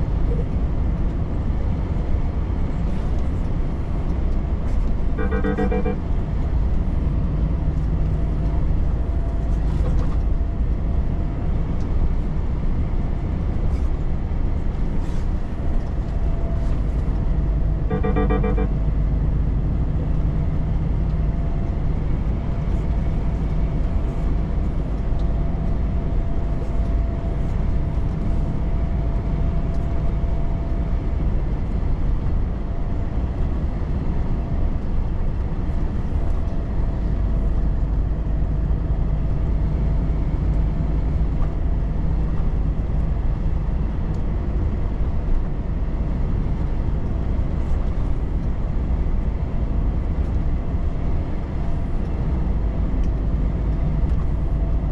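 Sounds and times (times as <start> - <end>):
road noise: 0.0 - 54.9
truck engine drone: 0.0 - 54.9
faint steady whine: 5.2 - 6.1, 17.7 - 19.0.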